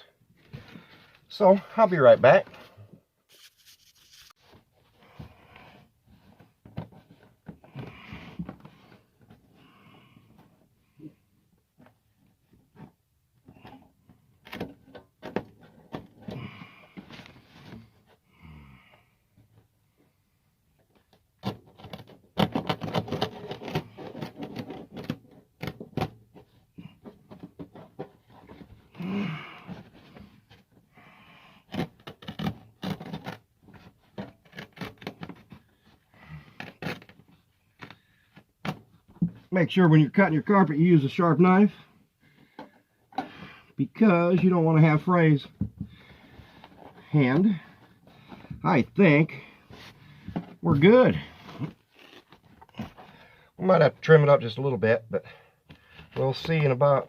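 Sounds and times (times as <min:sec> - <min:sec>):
person breathing hard: 0:28.9 - 0:31.7, 0:42.2 - 0:43.8, 0:45.8 - 0:48.6, 0:49.4 - 0:50.6, 0:52.9 - 0:53.6.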